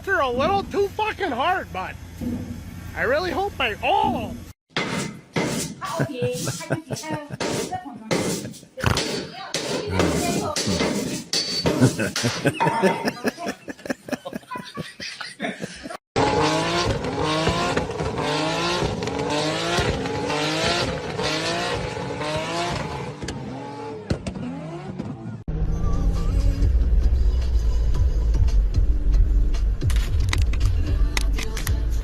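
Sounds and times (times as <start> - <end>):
vehicle engine revving: 16.2 - 29.8
loud low steady rumble: 25.5 - 32.0.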